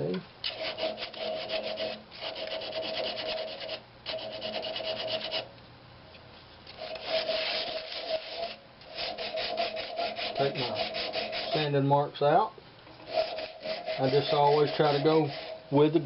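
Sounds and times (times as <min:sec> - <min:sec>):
sandpaper rasping on wood: 0:00.5 - 0:05.4, 0:06.8 - 0:11.7, 0:13.0 - 0:16.0.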